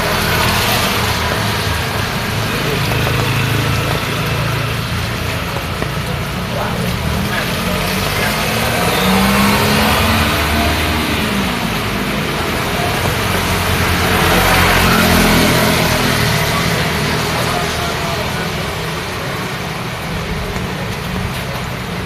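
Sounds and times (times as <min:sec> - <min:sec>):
rain hissing: 0:00.0 - 0:22.0
vehicles passing in rain: 0:00.0 - 0:22.0.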